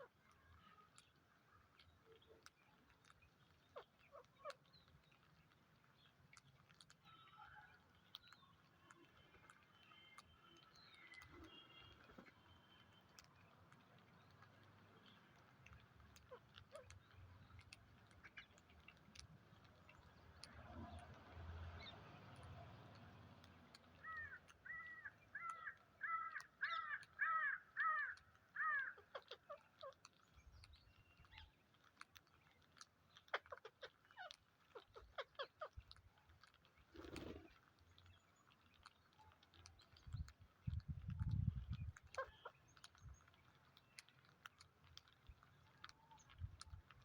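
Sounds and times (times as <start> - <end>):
bird harsh calls: 24.0 - 29.6.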